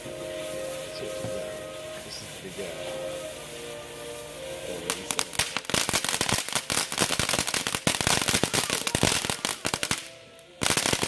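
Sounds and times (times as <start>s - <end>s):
firework crackling pops: 0.0s - 11.0s.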